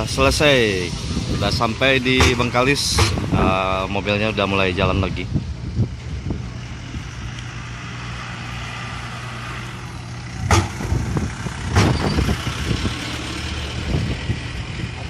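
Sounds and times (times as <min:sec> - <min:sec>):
car engine humming: 0:00.0 - 0:15.0
sharp knocks: 0:02.2 - 0:03.4, 0:10.4 - 0:11.0, 0:11.7 - 0:12.0.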